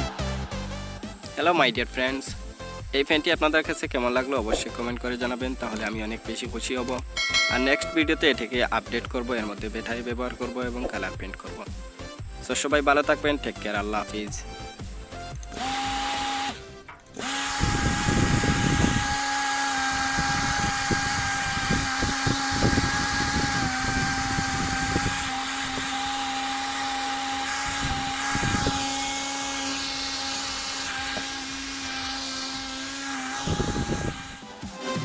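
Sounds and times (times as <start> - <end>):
small fan motor whining: 13.8 - 34.6.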